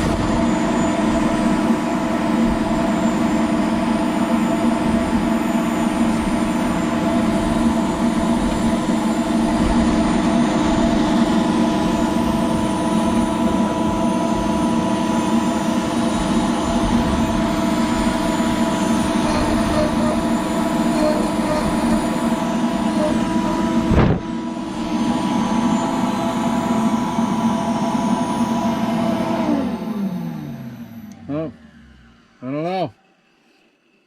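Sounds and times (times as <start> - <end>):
router spindle carving plastic: 2.4 - 24.3.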